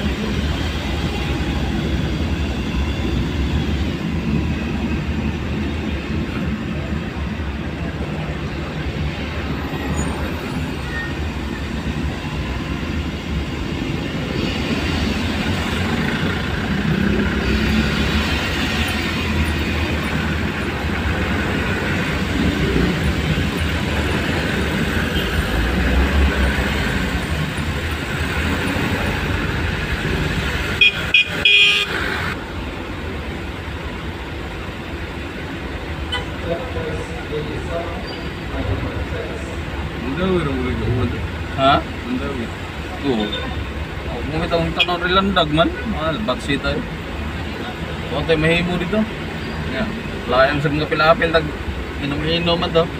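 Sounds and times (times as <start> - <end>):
road traffic: 0.0 - 52.9
vehicle horn tooting: 30.8 - 32.0.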